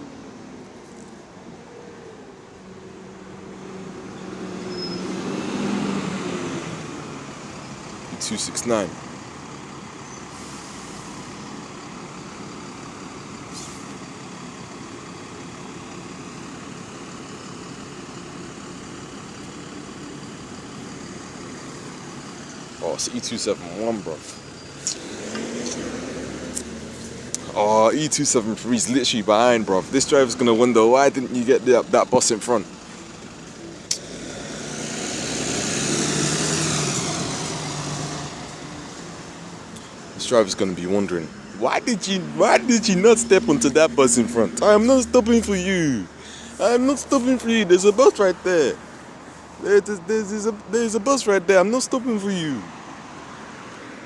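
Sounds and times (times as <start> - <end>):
road traffic noise: 0.0 - 54.0
bus engine running: 2.6 - 52.7
brief high hiss: 13.5 - 14.0.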